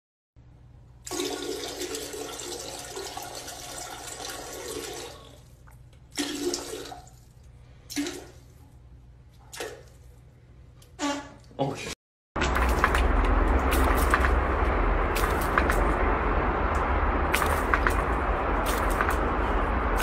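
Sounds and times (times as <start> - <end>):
water rushing into toilet bowl: 1.0 - 7.3.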